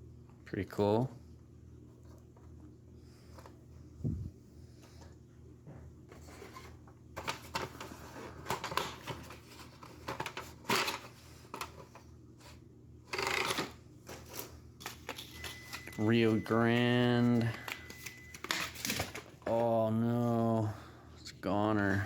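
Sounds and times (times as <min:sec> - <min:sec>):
cardboard packaging rustling: 0:06.1 - 0:19.8.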